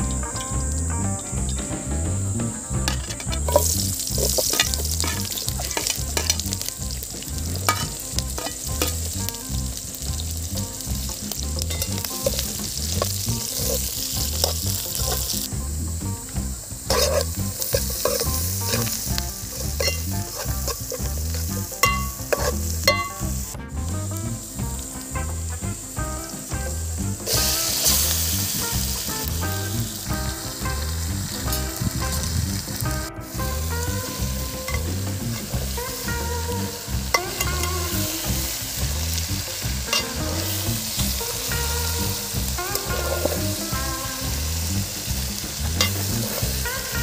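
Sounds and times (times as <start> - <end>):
background music with low beat: 0.0 - 47.0
onions sizzling in hot oil: 2.3 - 47.0
spoon scraping metal pot: 16.9 - 23.3.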